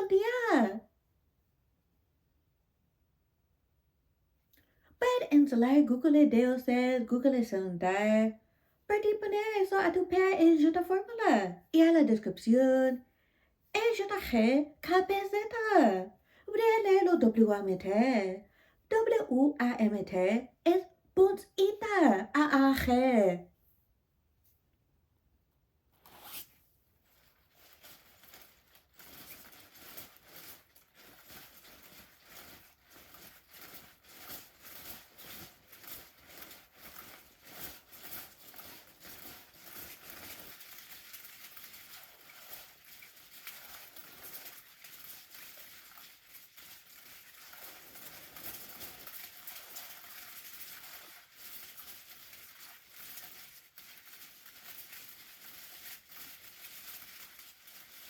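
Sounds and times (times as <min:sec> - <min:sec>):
rustling and scratching: 0:26.0 - 0:58.0.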